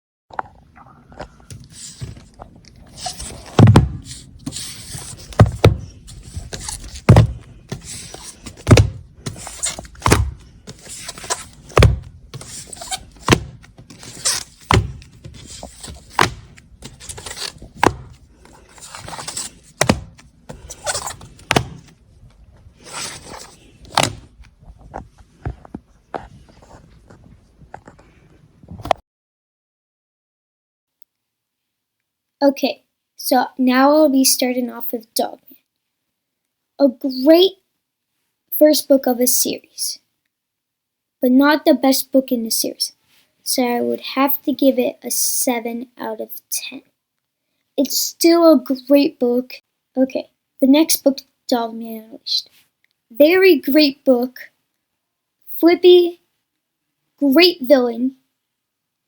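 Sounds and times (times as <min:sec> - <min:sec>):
scraping sounds: 0:00.3 - 0:29.0
hollow thunks: 0:01.2 - 0:29.0.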